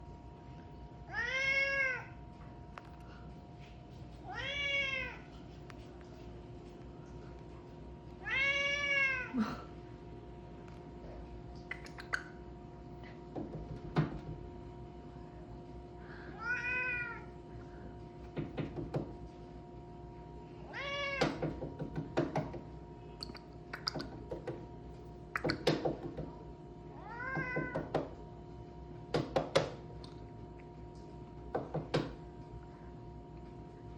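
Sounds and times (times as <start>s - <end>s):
steady hum: 0.0s - 33.9s
cat meowing: 1.1s - 2.1s, 4.3s - 5.3s, 8.2s - 9.3s, 16.4s - 17.3s, 20.7s - 21.2s, 27.0s - 27.8s.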